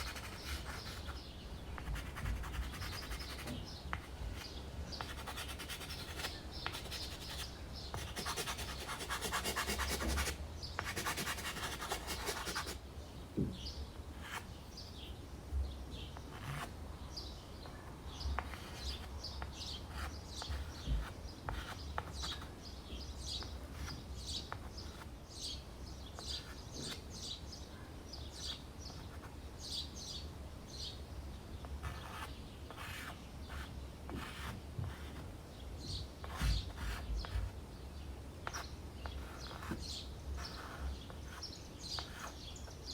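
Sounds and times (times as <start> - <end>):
pastel scratching on canvas board: 0.0 - 12.8, 31.8 - 35.3, 36.2 - 37.5, 38.5 - 42.5.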